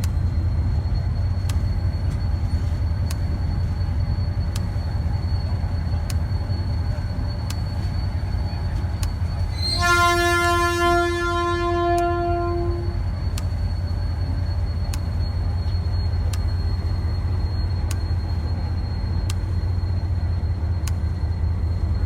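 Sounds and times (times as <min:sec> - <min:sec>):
diesel engine low rumble: 0:00.0 - 0:22.0
locomotive horn chord: 0:09.6 - 0:13.0
sharp click: 0:19.2 - 0:19.6.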